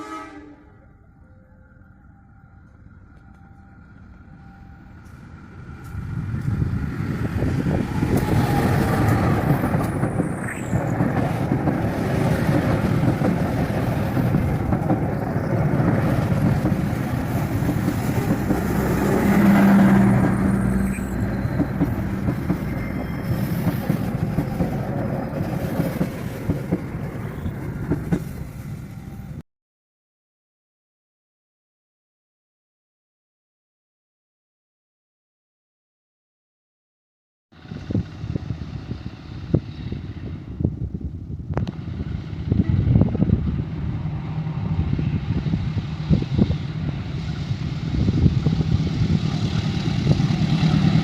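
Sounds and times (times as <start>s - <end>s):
train passing rumble: 0.0s - 29.4s, 37.6s - 51.0s
wheel squeaks: 15.1s - 26.1s.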